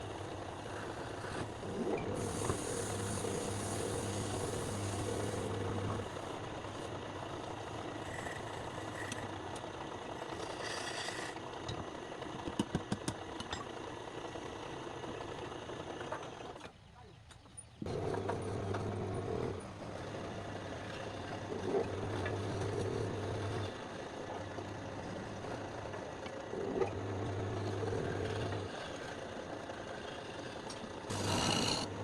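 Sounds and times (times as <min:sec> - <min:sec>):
machine motor humming: 0:00.7 - 0:09.6, 0:31.1 - 0:32.0.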